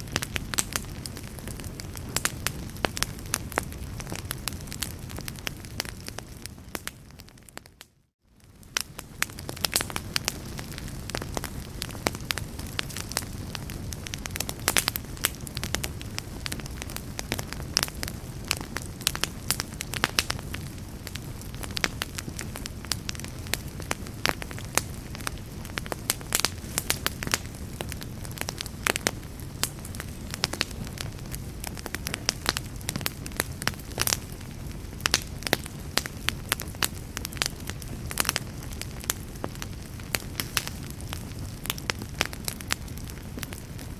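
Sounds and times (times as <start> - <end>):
fire crackling and popping: 0.0 - 43.9.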